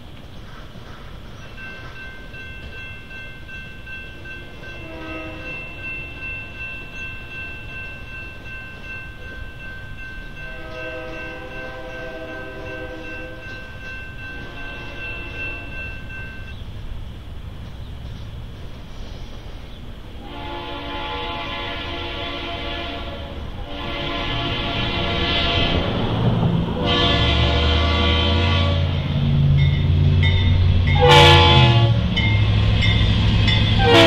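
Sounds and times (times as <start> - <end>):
freight train rumble: 0.0 - 34.0
high steady ringing tone: 1.6 - 16.6
train horn blasts: 4.7 - 5.8, 10.4 - 13.7, 14.4 - 15.8, 20.2 - 29.2, 30.9 - 32.4, 33.7 - 34.0.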